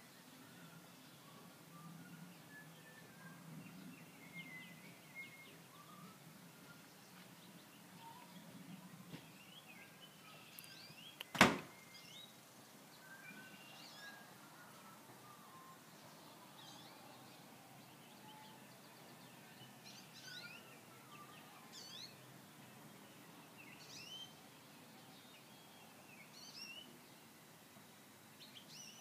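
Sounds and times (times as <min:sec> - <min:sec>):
songbirds chirping: 0:00.0 - 0:29.0
sharp knock: 0:11.3 - 0:11.7.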